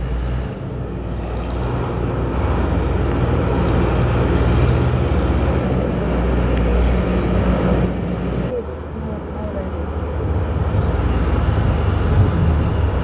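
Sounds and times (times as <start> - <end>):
heavy engine droning: 0.0 - 13.0.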